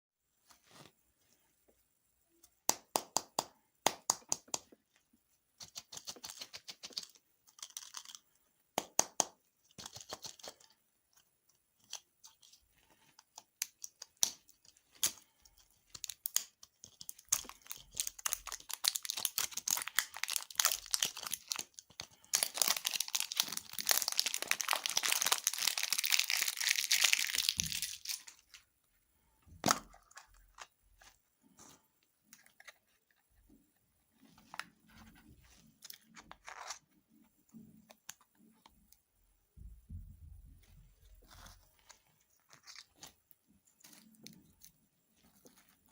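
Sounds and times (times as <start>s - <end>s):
candy packaging crinkling: 5.6s - 11.2s, 11.8s - 28.7s, 41.2s - 45.9s.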